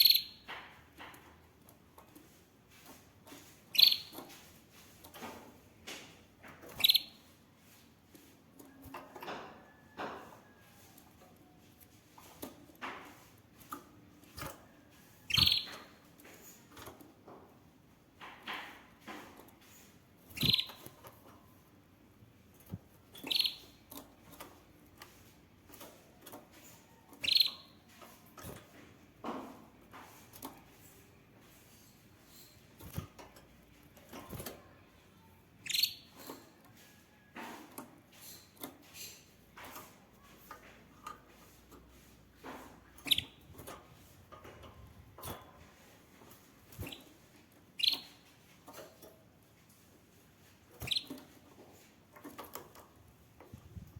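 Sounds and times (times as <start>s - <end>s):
canary trills: 0.0s - 0.5s, 2.9s - 4.4s, 6.6s - 7.8s, 14.4s - 16.6s, 20.2s - 21.0s, 23.0s - 28.4s, 35.2s - 37.0s, 41.4s - 44.2s, 46.6s - 48.8s, 50.7s - 52.2s
canary chirps: 0.0s - 1.3s, 2.0s - 5.5s, 6.4s - 11.0s, 11.8s - 17.0s, 18.4s - 21.4s, 22.5s - 28.8s, 29.9s - 49.8s, 50.6s - 52.6s.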